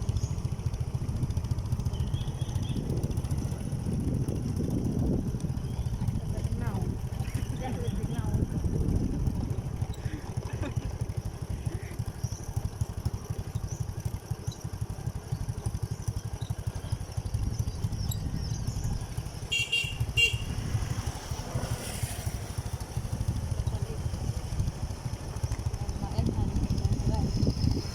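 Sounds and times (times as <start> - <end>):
motorcycle engine running: 0.0 - 27.9
short horn beeps: 19.4 - 20.7.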